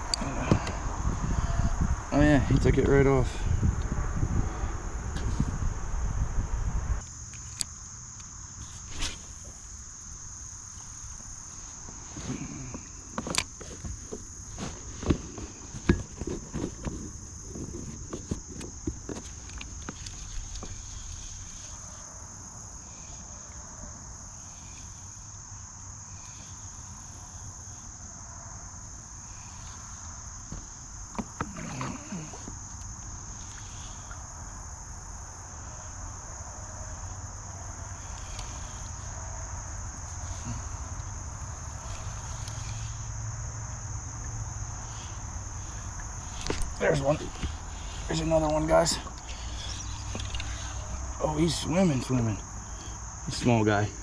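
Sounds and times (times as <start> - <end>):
loud low rumbling noise: 0.0 - 7.0
high-pitched insect chorus: 0.0 - 54.0.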